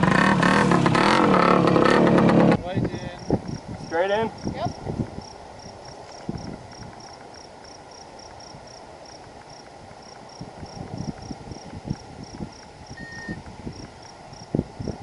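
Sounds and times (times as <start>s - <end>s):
cricket chirping: 3.0s - 15.0s.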